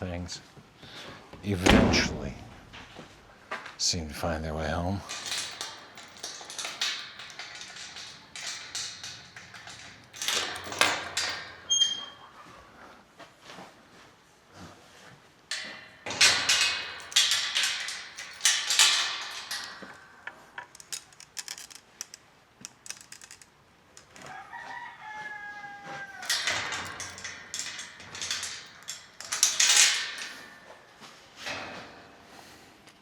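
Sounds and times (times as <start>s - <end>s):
roosters crowing: 24.1s - 27.2s.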